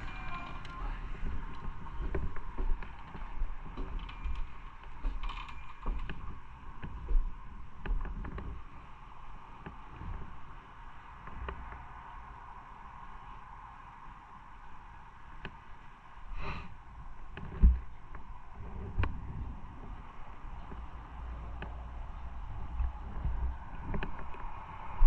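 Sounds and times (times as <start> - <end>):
short creaks and clicks: 0.0 - 7.2, 22.8 - 24.6
wind and road rumble: 0.0 - 25.0.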